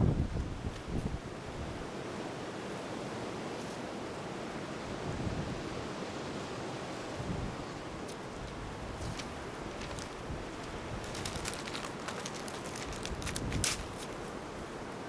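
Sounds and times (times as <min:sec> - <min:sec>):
campfire rushing: 0:07.9 - 0:14.8
fire crackles: 0:08.1 - 0:14.4.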